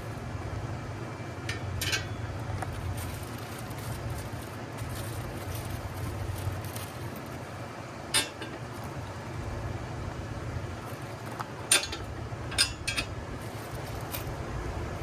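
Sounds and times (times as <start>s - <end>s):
metal clinks and taps: 1.5s - 3.9s, 8.2s - 8.9s.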